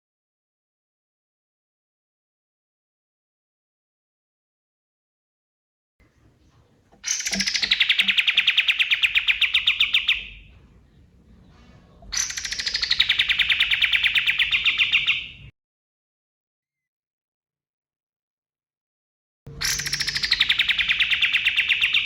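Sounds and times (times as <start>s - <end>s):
songbird trilling: 6.2s - 15.5s, 19.6s - 22.0s.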